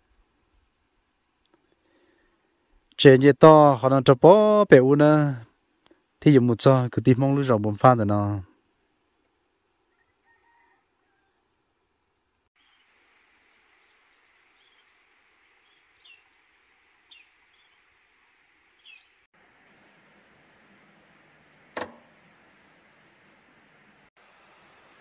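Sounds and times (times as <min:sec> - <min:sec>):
small birds chirping: 0:12.6 - 0:19.8
steady hiss: 0:12.6 - 0:25.0.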